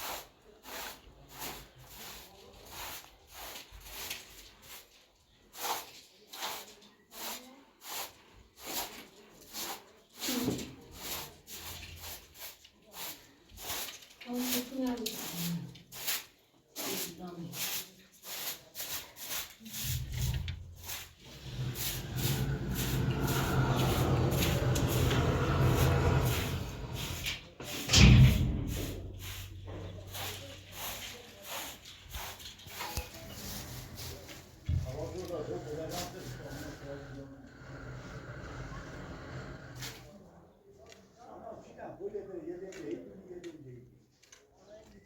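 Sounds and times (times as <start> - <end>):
hissy scraping strokes: 17.8 - 40.2.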